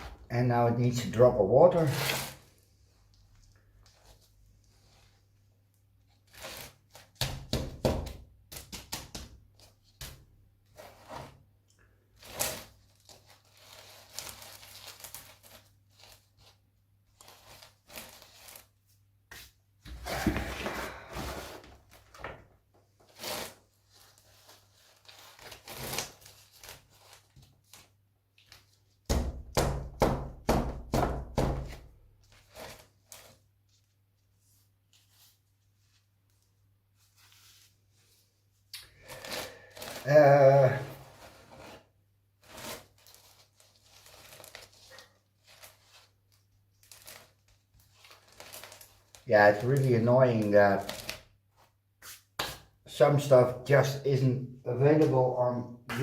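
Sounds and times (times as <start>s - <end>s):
potting material rustling: 12.1s - 28.9s, 32.2s - 52.5s.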